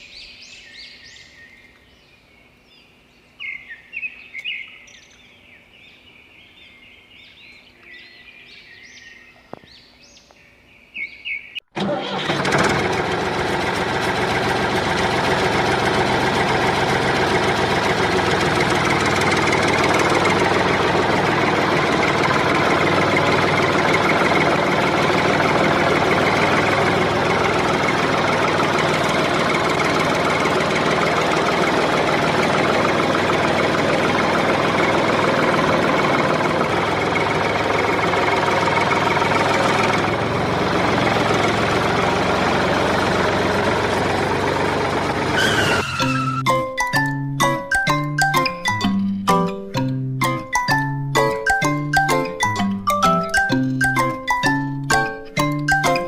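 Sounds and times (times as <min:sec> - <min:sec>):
birds chirping: 0:00.0 - 0:11.6
loud engine running: 0:11.8 - 0:46.6.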